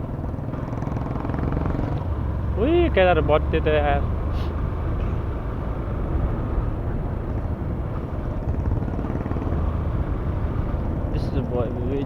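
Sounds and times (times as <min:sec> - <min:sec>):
motorcycle engine: 0:00.0 - 0:12.0.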